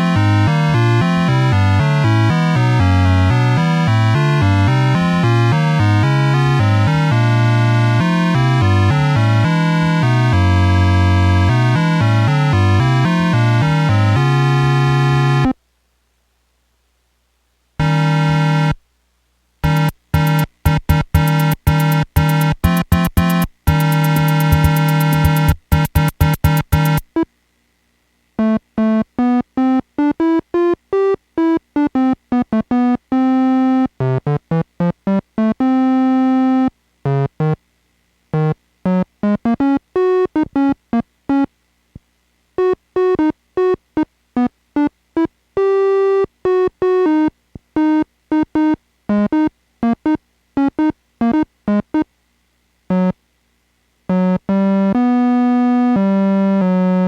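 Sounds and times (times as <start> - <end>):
electronic instrument note runs: 17.8 - 18.8, 19.6 - 27.0.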